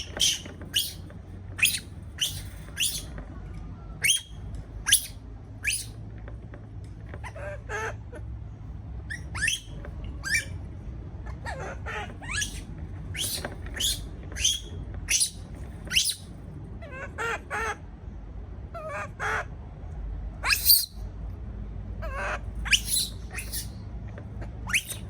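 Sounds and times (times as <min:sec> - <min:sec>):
baby monkey crying: 0:00.0 - 0:01.0, 0:01.6 - 0:03.1, 0:04.0 - 0:04.3, 0:04.9 - 0:05.9, 0:09.1 - 0:10.5, 0:11.4 - 0:16.3, 0:20.4 - 0:21.0, 0:22.0 - 0:23.8, 0:24.6 - 0:25.0.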